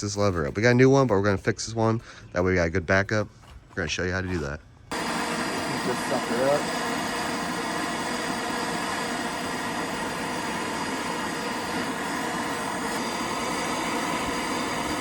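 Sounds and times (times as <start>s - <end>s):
mechanical whir and hiss: 4.9s - 15.0s.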